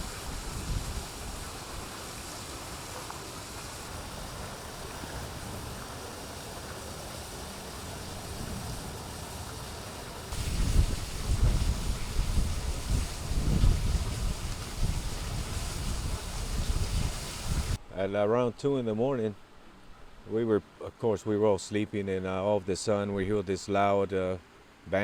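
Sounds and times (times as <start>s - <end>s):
wind gusts buffeting microphone: 0.0s - 2.4s, 3.2s - 17.8s
wind: 0.0s - 25.0s.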